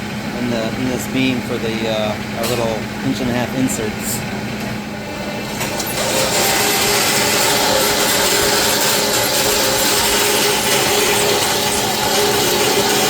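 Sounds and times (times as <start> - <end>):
power drill boring metal: 5.4 - 13.0.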